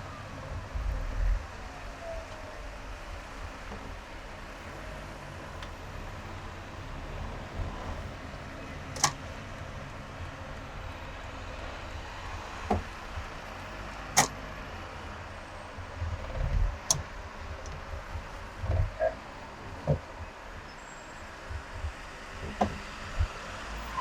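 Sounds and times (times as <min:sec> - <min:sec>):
low bumps: 0:00.0 - 0:20.7
road and engine rumble: 0:00.0 - 0:24.0
sharp clicks: 0:08.7 - 0:10.7, 0:14.1 - 0:14.5.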